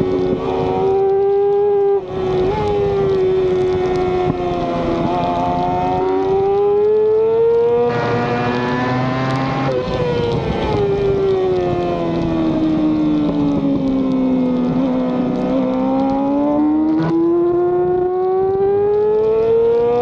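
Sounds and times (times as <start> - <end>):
racing motorcycle engine revving: 0.0 - 20.0.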